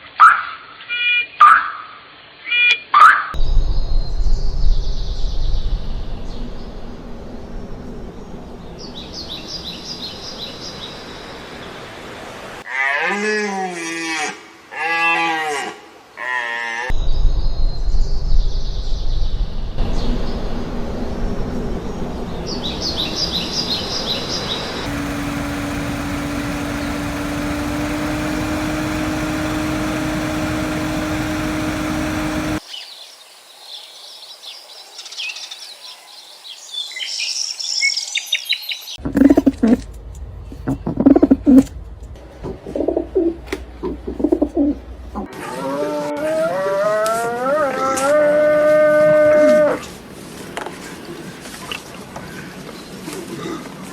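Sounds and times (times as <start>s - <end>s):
long steady hum: 19.8s - 32.6s
birds twittering: 21.9s - 33.1s.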